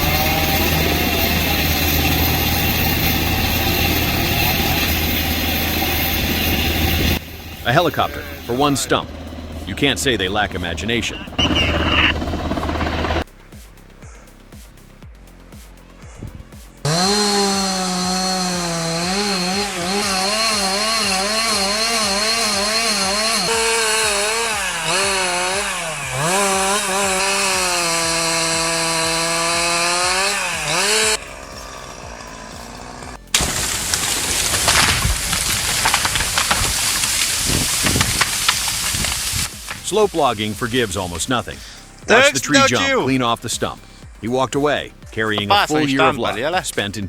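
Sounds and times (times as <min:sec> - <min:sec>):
chainsaw running at high revs: 0:00.0 - 0:13.3, 0:16.8 - 0:43.0
rough rushing noise with crackles: 0:33.2 - 0:41.6.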